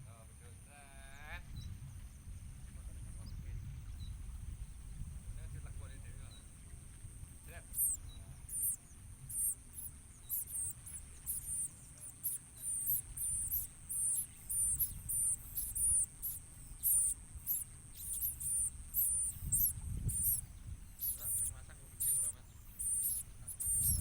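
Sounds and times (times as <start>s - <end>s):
steady high whine: 5.8s - 24.0s
birds chirping high-pitched: 6.2s - 24.0s.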